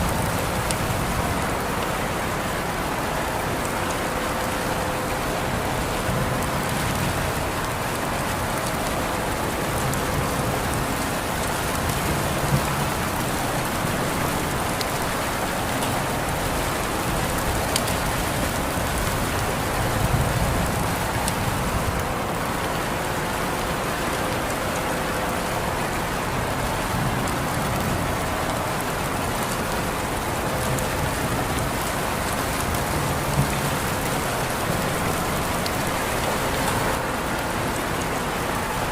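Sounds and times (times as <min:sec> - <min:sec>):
close raindrops: 0:00.0 - 0:38.9
rain pattering: 0:00.0 - 0:38.9.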